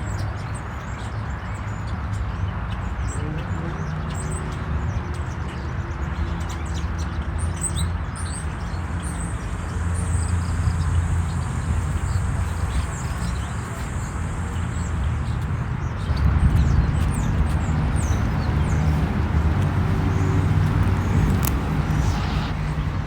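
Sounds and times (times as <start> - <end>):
small birds chirping: 0.0 - 23.0
steady low rumble: 10.1 - 23.0.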